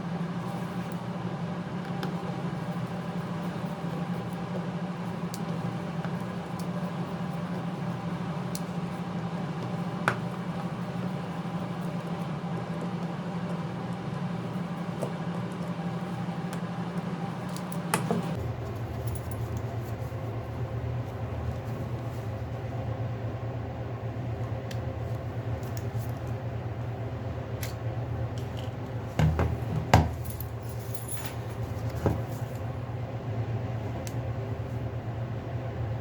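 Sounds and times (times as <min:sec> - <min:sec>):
low background hum: 0:00.0 - 0:36.0.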